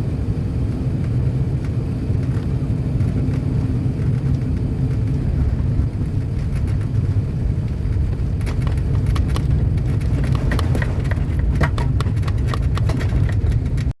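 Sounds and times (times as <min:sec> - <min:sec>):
aircraft cabin low rumble: 0:00.0 - 0:14.0
cabin clicks and rattles: 0:04.0 - 0:13.9.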